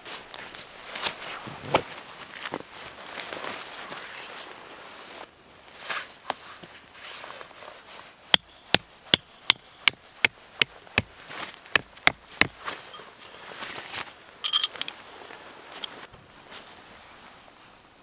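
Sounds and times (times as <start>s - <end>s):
hammer striking tent stake: 8.3s - 11.1s, 11.7s - 12.6s
brief metallic jingle: 14.4s - 15.0s.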